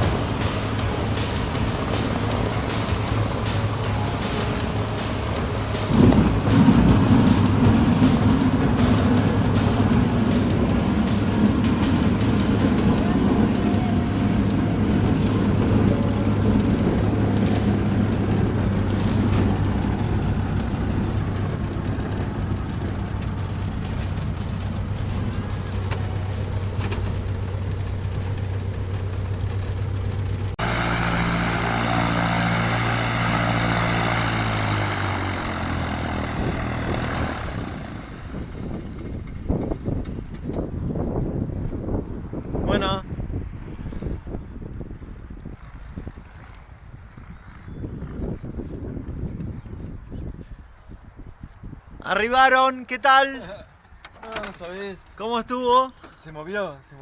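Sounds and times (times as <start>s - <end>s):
different engine sound: 0.0s - 40.4s
propeller plane engine droning: 0.0s - 51.8s.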